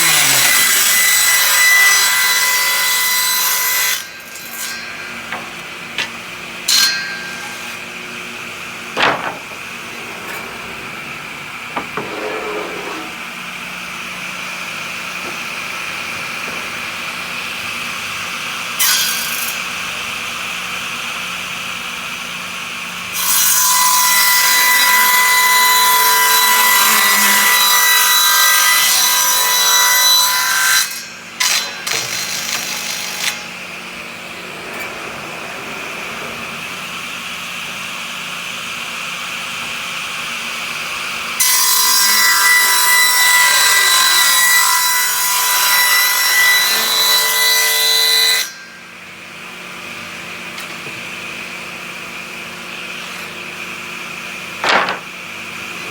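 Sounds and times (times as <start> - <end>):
power saw cutting wood: 0.0 - 19.8, 22.6 - 55.9
wood knocks: 9.0 - 9.7, 54.6 - 55.2.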